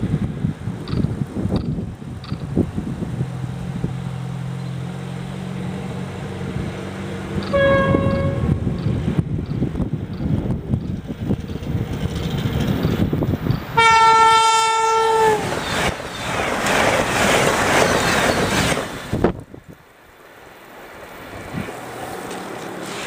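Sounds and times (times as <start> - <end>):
passing train rushing and wheel clatter: 0.0 - 23.0
train rumble: 0.0 - 23.0
train horn blast: 7.4 - 8.7, 13.8 - 15.5.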